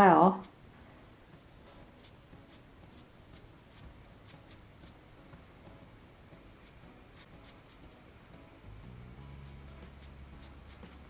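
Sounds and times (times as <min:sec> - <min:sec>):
low room noise: 0:00.0 - 0:11.0
brush scratching on paper: 0:00.4 - 0:05.0, 0:06.6 - 0:08.0, 0:09.2 - 0:11.0.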